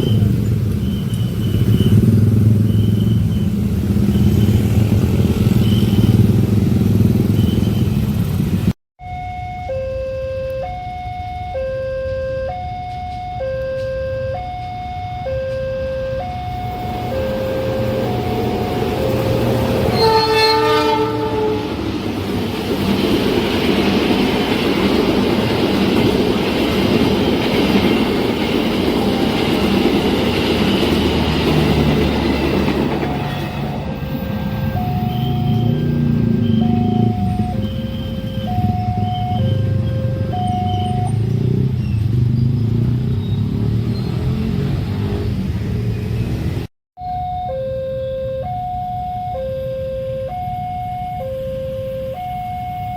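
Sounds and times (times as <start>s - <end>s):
two-tone crossing alarm: 0.0s - 6.3s, 9.0s - 21.9s, 24.6s - 41.5s, 47.0s - 52.9s
train rumbling and wheel clatter: 0.0s - 8.8s, 16.4s - 46.7s
train horn: 9.9s - 22.0s.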